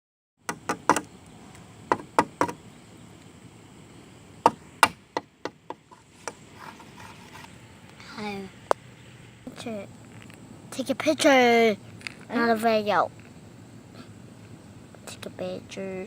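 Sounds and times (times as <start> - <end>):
sharp knocks and taps: 0.5 - 1.1, 1.9 - 2.6.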